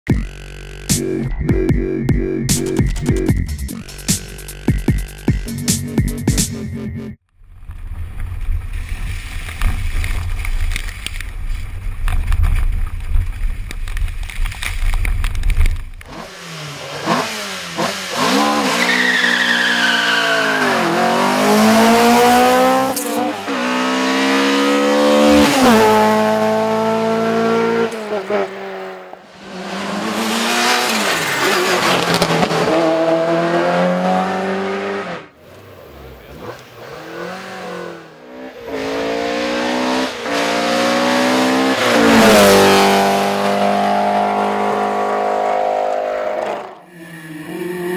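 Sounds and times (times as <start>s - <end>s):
electronic music with heavy bass: 0.1s - 7.2s
rally cars at full throttle: 7.6s - 47.9s.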